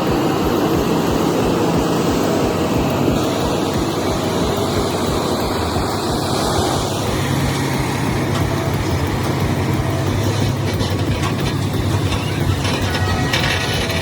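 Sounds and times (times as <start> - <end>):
heavy truck engine drone: 0.0 - 14.0.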